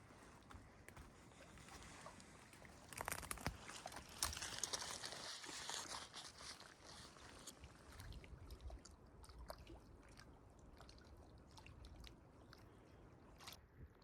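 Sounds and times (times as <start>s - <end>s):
small ticks and clicks: 2.6s - 5.0s.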